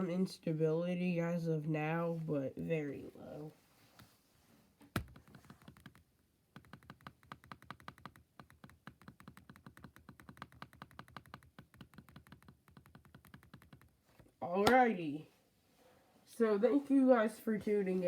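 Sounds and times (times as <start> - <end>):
faint keyboard typing: 4.9 - 14.1.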